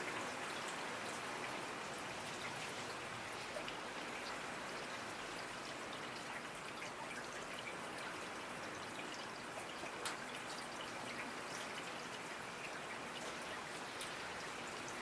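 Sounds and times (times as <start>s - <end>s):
steady rainfall: 0.0s - 15.0s
raindrop ticks: 9.6s - 11.9s.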